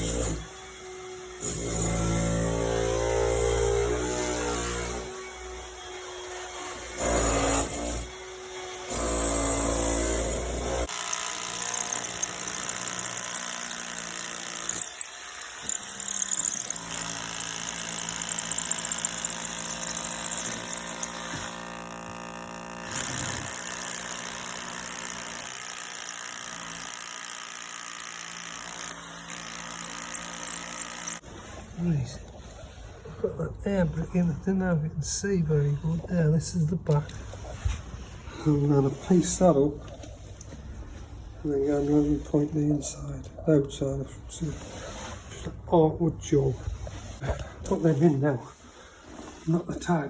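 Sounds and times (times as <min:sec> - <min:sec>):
power tool cutting brickwork: 0:00.0 - 0:31.8.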